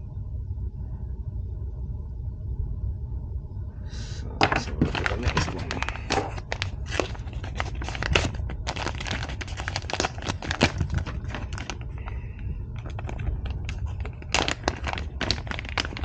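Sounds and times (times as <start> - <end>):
low hum: 0.0 - 16.0
plastic packaging crinkling: 4.4 - 16.0.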